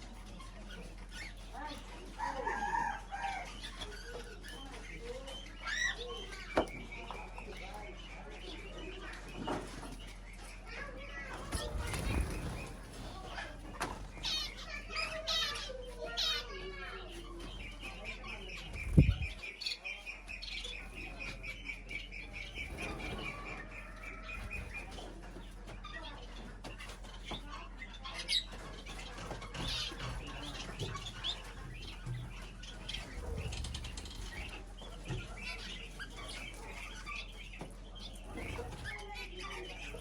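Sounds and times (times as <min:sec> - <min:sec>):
small birds chirping: 0:00.0 - 0:40.0
wings fluttering: 0:11.2 - 0:19.7, 0:20.6 - 0:40.0.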